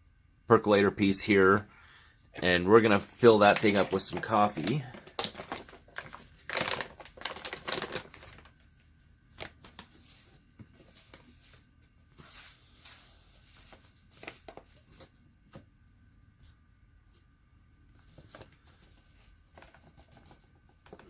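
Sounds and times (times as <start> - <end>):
coffee grounds rustling and scraping: 9.8 - 14.8.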